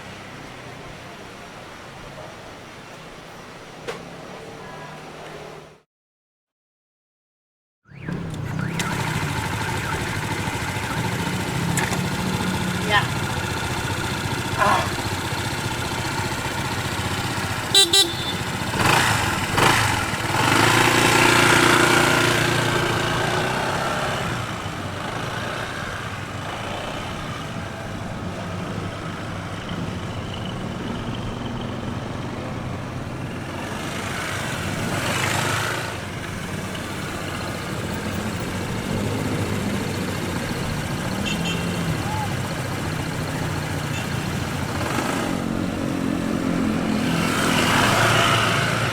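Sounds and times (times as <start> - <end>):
vehicles passing by: 0.0 - 5.8, 7.9 - 48.9
car horn: 16.5 - 19.8, 40.9 - 42.4, 43.3 - 44.6.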